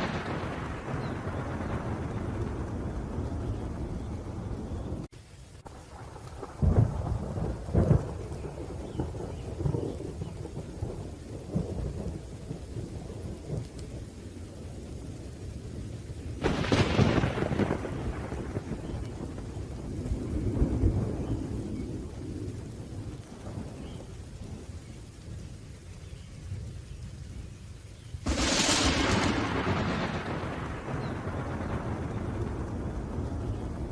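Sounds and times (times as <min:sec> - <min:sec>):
sharp thunderclap: 0:00.0 - 0:05.1, 0:05.9 - 0:13.8, 0:16.4 - 0:24.6, 0:28.2 - 0:33.9
low rolling thunder: 0:00.0 - 0:27.6, 0:28.2 - 0:33.9
rain: 0:00.0 - 0:33.9.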